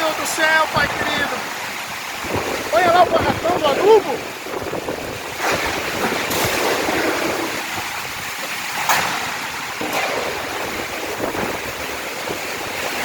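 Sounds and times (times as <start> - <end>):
heavy rain: 0.0 - 13.0
strong wind gusts: 0.0 - 13.0.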